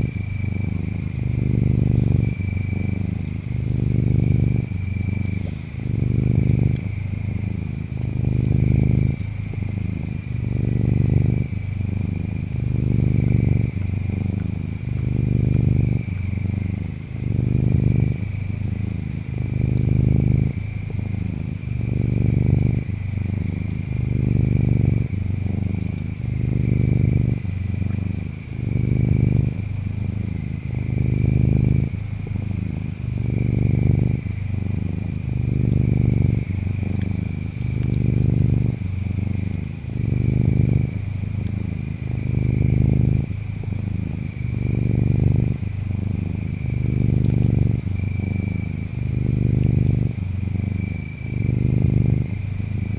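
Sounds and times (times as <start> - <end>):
cat purring: 0.0 - 52.9
insects trilling: 0.0 - 52.9.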